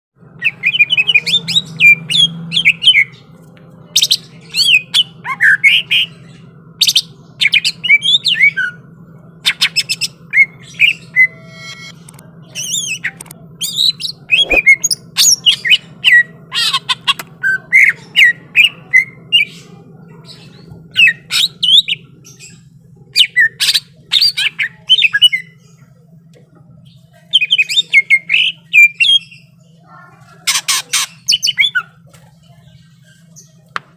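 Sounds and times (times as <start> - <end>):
steady low hum: 0.2 - 30.4
bird singing whistles and harsh notes: 13.8 - 15.4.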